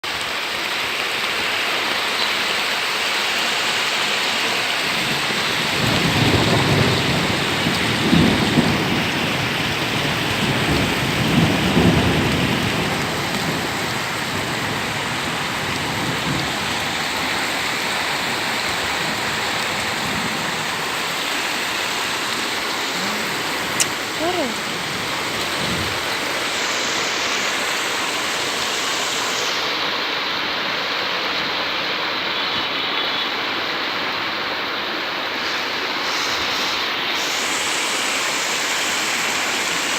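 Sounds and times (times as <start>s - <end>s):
heavy rain pouring: 0.0s - 39.9s
thunder rumbling: 5.0s - 28.3s.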